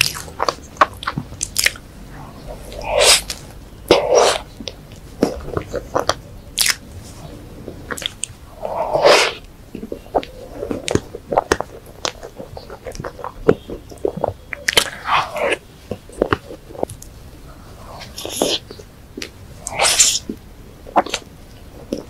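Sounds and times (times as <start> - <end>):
lip smacks: 0.0 - 6.8, 7.9 - 17.1, 17.8 - 21.3
sticky mouth clicks: 0.0 - 6.8, 7.9 - 17.1, 17.9 - 22.0
wet chewing: 0.0 - 22.0
airy rushes: 2.0 - 4.5.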